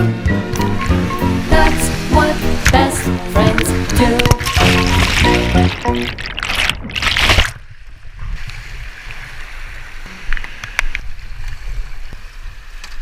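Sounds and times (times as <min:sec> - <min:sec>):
whitewater rushing: 0:00.8 - 0:07.5.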